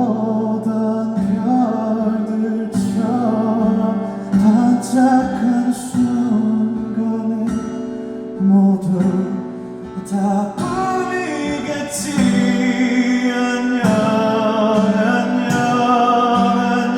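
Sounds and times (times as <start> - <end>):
acoustic guitar: 0.0 - 16.9
man singing: 0.0 - 16.9.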